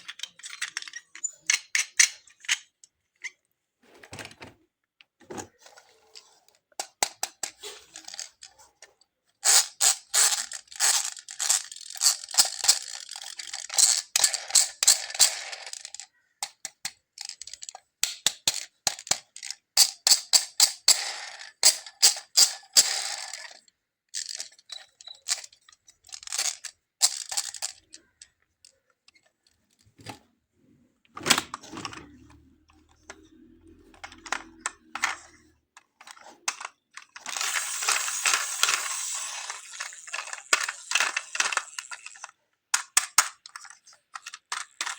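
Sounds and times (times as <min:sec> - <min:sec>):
toy clicks and taps: 0:09.4 - 0:29.2, 0:32.2 - 0:44.9.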